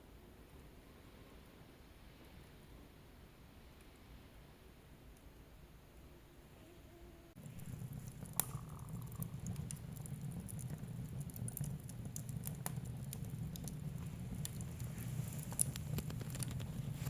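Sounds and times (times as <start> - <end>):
wood fire crackling: 7.4 - 17.0.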